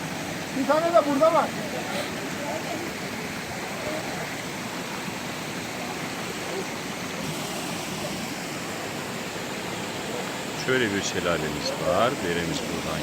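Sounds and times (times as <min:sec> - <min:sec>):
waterfall rushing and splashing: 0:00.0 - 0:13.0.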